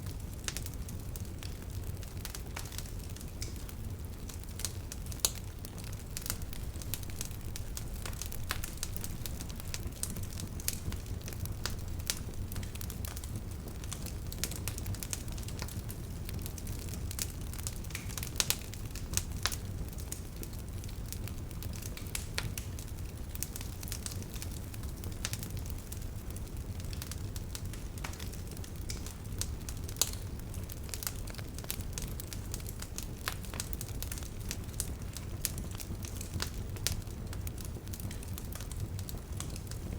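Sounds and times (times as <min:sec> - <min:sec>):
bonfire crackling and popping: 0:00.0 - 0:39.9
low rumble of flames: 0:00.0 - 0:39.9.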